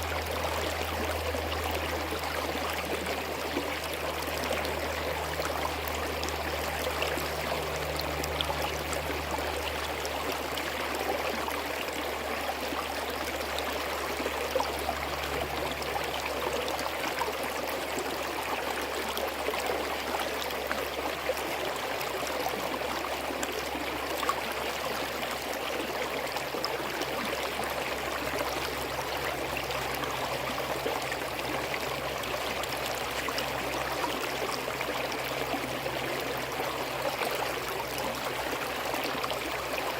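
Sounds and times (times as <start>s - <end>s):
stream burbling over rocks: 0.0s - 39.9s.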